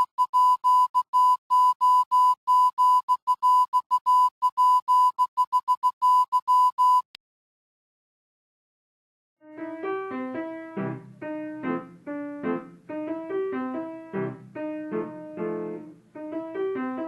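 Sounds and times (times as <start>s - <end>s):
morse code beeping: 0.0s - 7.1s.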